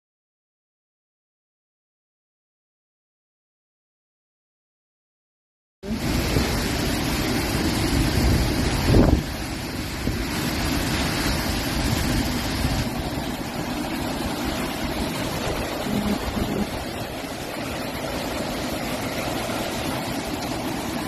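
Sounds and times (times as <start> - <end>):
rushing water: 5.8 - 21.0
strong wind blowing: 5.9 - 17.9
wind buffeting the microphone: 6.0 - 17.2.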